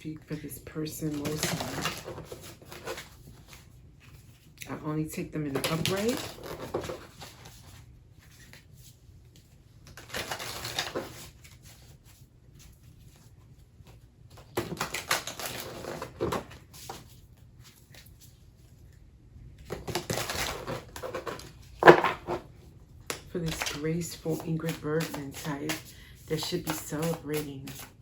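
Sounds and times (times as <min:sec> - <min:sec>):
cards shuffling: 0:05.5 - 0:18.4, 0:19.6 - 0:28.0.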